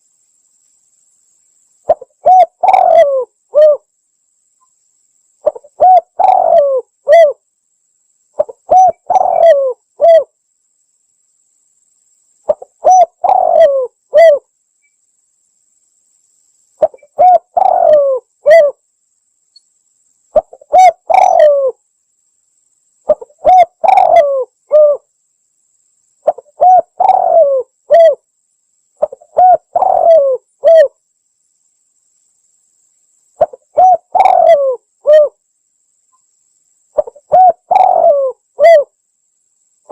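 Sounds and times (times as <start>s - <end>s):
dove cooing: 1.9s - 3.9s, 5.4s - 7.4s, 8.4s - 10.3s, 12.5s - 14.4s, 16.8s - 18.8s, 20.4s - 21.8s, 23.1s - 25.0s, 26.2s - 28.2s, 29.0s - 30.9s, 33.4s - 35.4s, 37.0s - 38.9s.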